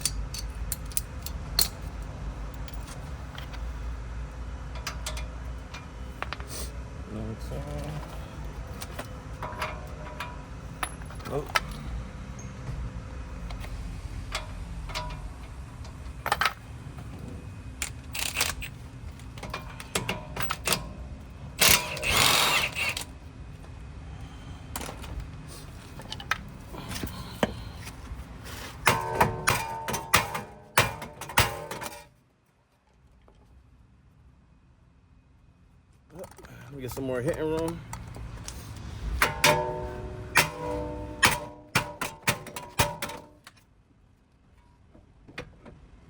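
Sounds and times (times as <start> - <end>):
metal tools clinking: 0.0 - 1.9, 7.6 - 12.5, 13.5 - 16.6, 17.8 - 21.0, 21.6 - 23.1, 28.7 - 32.1, 39.2 - 43.6
ringing metal strikes: 28.9 - 31.3, 39.2 - 42.1.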